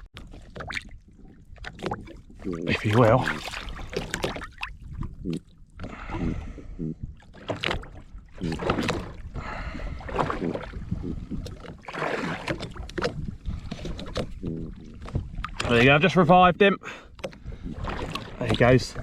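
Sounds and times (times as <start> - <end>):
water splashing against boat: 0.0 - 19.0
wind on microphone: 4.7 - 11.8, 12.5 - 16.0.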